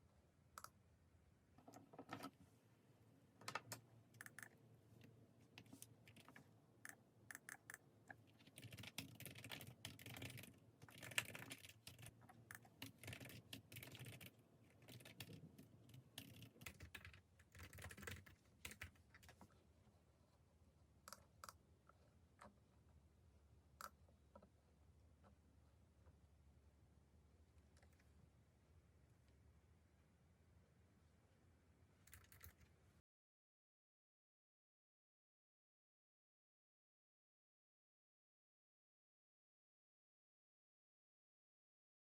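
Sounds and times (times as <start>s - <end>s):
faint keyboard typing: 3.4s - 19.6s, 27.7s - 28.2s, 32.0s - 32.8s.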